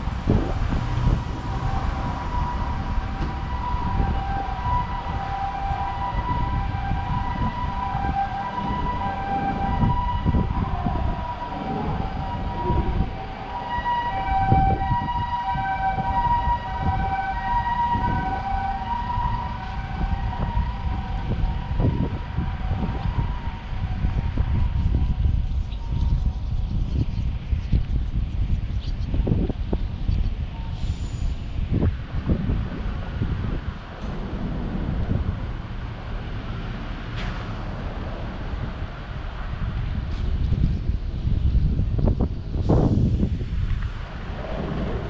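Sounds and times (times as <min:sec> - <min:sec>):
street traffic rumble: 0:00.0 - 0:45.0
two-tone siren: 0:00.3 - 0:26.5, 0:44.0 - 0:45.0.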